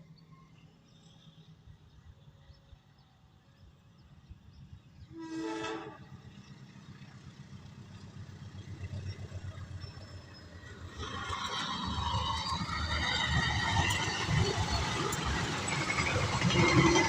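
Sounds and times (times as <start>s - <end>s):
train rumble: 1.3s - 17.0s
train horn blast: 5.1s - 6.3s.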